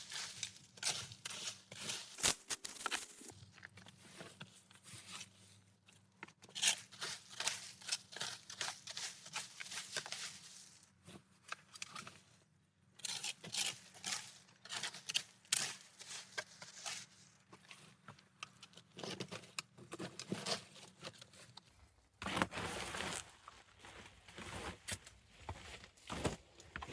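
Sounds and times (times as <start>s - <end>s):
leaves scraped on paved path: 6.6s - 10.8s.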